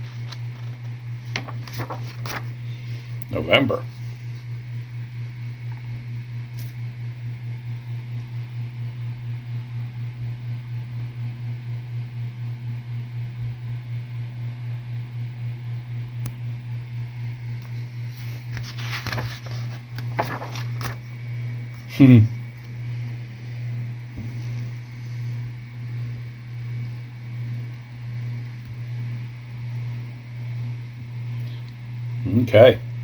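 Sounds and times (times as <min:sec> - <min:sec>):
paper rustling: 0:00.0 - 0:03.1, 0:18.1 - 0:21.1
low pulsing hum: 0:00.0 - 0:33.0.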